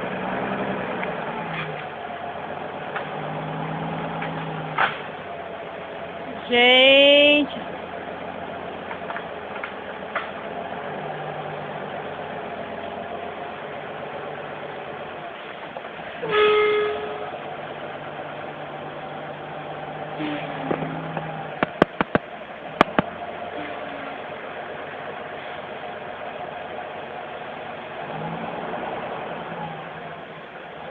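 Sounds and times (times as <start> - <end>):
engine and traffic hum: 0.0 - 30.9
vehicle horn blast: 16.2 - 17.4.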